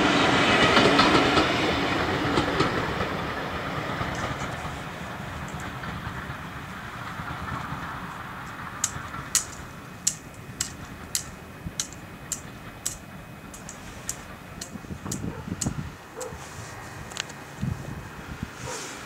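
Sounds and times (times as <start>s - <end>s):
passing train rumble: 0.0s - 19.0s
sharp high clicks: 8.8s - 16.3s.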